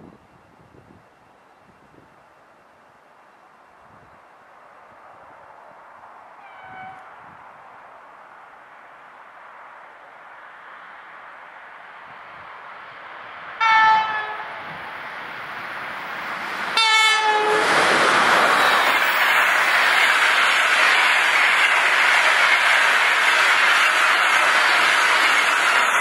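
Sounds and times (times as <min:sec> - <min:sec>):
train passing at speed: 0:00.0 - 0:26.0
locomotive horn blasts: 0:06.4 - 0:07.1, 0:13.6 - 0:14.7, 0:16.8 - 0:17.7.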